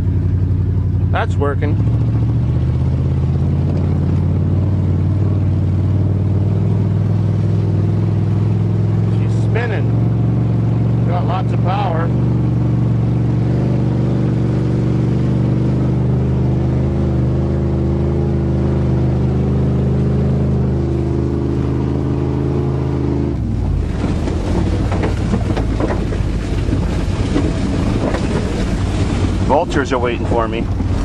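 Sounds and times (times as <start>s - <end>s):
pickup engine pulling: 0.0s - 31.0s
road and wind noise: 0.0s - 31.0s
rattles: 23.4s - 31.0s.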